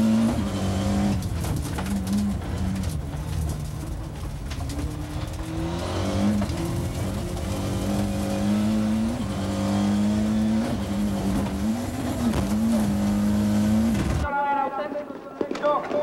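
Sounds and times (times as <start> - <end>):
rally car engine revving: 0.0 - 14.3.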